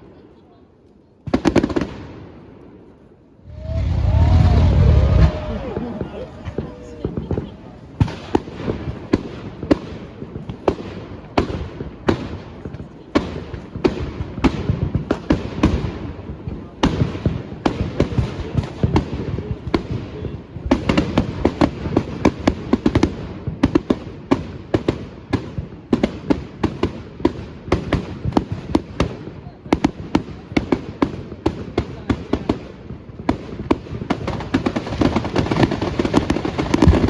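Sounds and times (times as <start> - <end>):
firework bangs and bursts: 1.2 - 2.4, 3.4 - 37.0
low rumble: 3.5 - 7.4.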